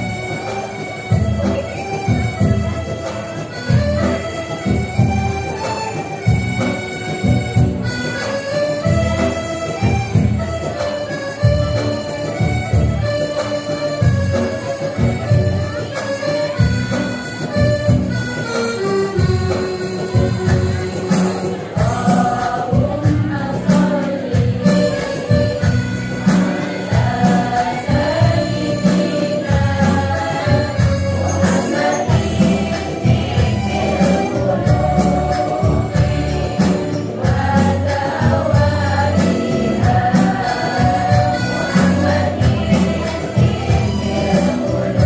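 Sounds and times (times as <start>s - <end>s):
instrumental accompaniment with beat: 0.0s - 45.0s
women's choir singing: 21.2s - 25.7s, 26.3s - 45.0s.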